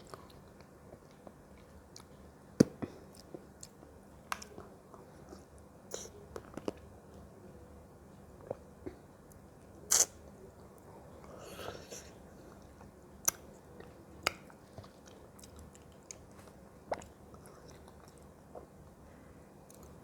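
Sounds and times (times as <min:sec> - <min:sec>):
person chewing: 0:11.3 - 0:18.7.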